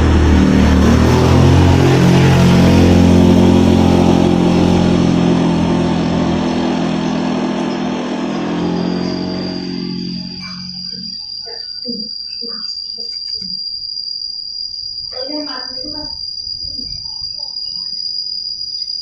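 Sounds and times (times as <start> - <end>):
motorcycle engine running: 0.0 - 11.3.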